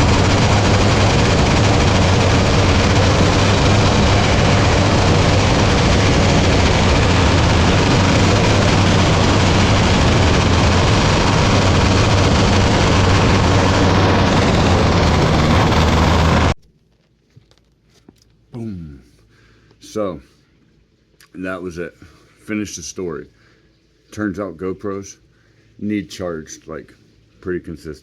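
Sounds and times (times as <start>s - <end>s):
race car engine running flat out: 0.0s - 16.6s.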